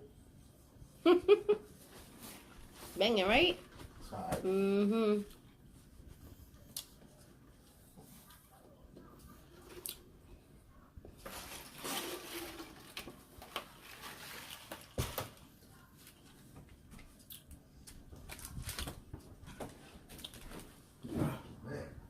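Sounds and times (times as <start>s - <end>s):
chewing and wet mouth noises: 6.7s - 7.0s, 17.2s - 18.9s.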